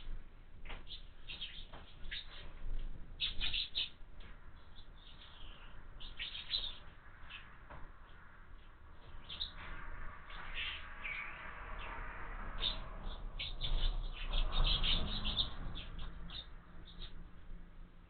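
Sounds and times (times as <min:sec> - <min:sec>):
sparrows chirping: 0:00.0 - 0:08.2, 0:09.0 - 0:17.6
low rumble: 0:04.3 - 0:18.0.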